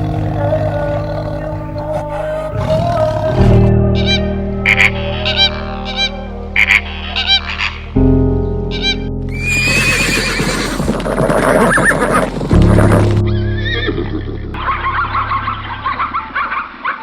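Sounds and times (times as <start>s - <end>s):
background music: 0.0s - 16.8s
horse whinnying: 9.3s - 12.3s.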